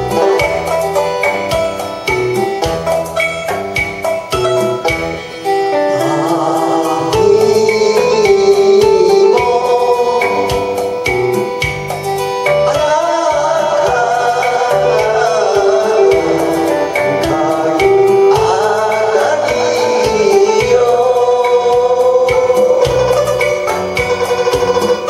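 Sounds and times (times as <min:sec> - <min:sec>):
bass and percussion accompaniment: 0:00.0 - 0:25.0
person singing with vibrato: 0:04.2 - 0:25.0.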